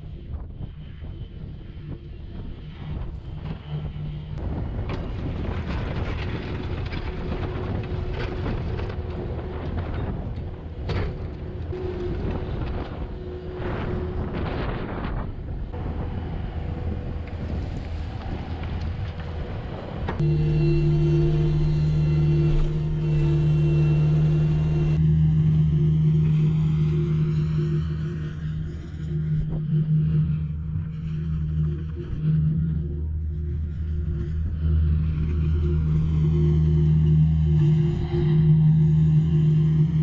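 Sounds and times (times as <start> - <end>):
skid loader engine running: 1.9 - 32.0.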